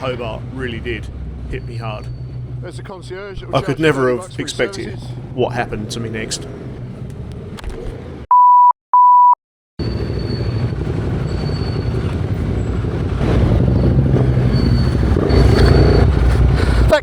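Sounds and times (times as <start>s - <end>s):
motorcycle engine rumbling: 0.0s - 8.2s, 9.8s - 17.0s
short loud beeps: 8.3s - 9.4s.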